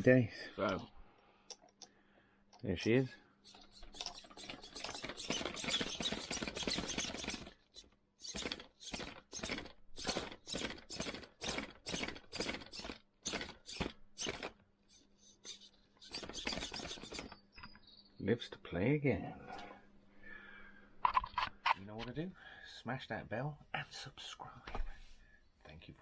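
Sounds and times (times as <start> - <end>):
servo motor buzzing: 3.4 - 17.4.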